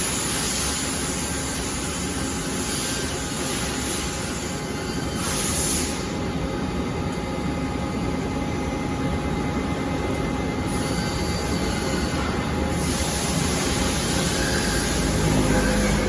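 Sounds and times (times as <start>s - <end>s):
industrial machinery rushing noise: 10.7s - 16.0s.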